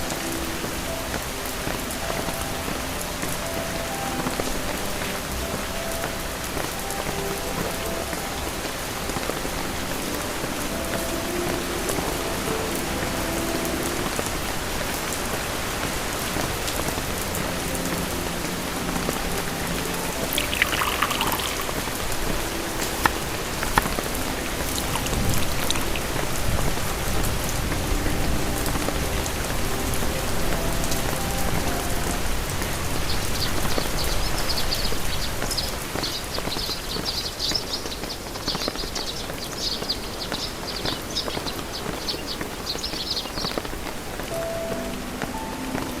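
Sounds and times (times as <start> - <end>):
water dripping: 0.0 - 32.7, 37.6 - 44.9
rain falling: 0.0 - 46.0
faint high twittering: 20.3 - 26.5, 39.6 - 44.2.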